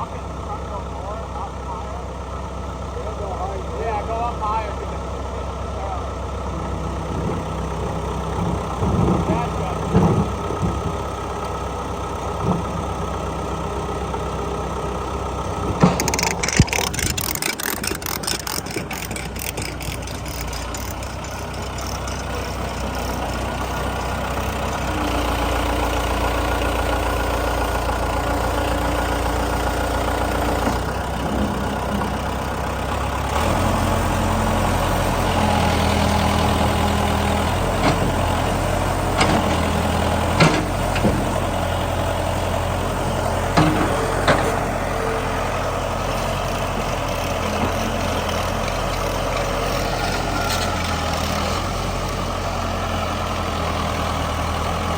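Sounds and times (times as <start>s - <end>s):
heavy vehicle engine idling: 0.0s - 54.9s
rapid clicking and rattling: 15.6s - 24.7s.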